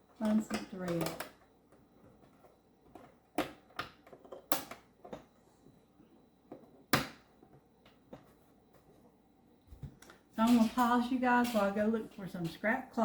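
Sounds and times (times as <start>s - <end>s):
hard objects clicking and knocking: 0.2s - 5.4s.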